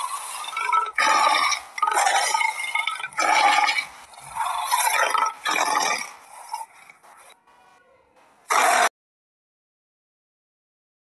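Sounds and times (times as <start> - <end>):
jaguar hissing: 0.0 - 7.4, 8.5 - 8.9.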